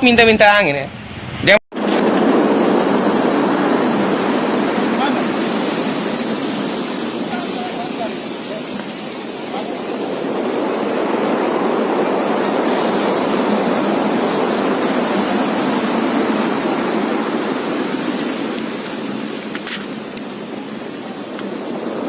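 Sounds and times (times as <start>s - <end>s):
strong wind: 0.0s - 22.0s
heavy rain: 1.7s - 22.0s.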